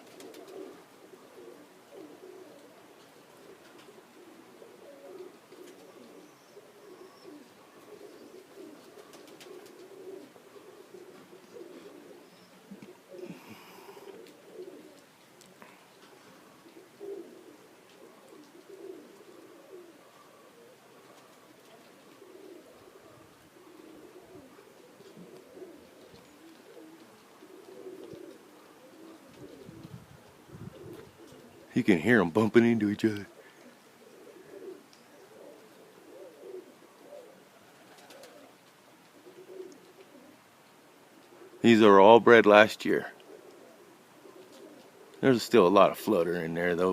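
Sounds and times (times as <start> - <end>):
pigeons cooing: 0.0 - 46.9
faint clicks: 14.0 - 16.8, 34.9 - 35.1, 37.9 - 40.2.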